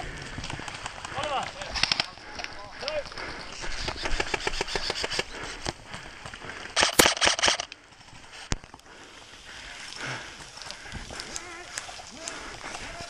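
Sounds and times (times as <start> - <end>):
airsoft guns firing: 4.0 - 5.3, 6.8 - 7.7.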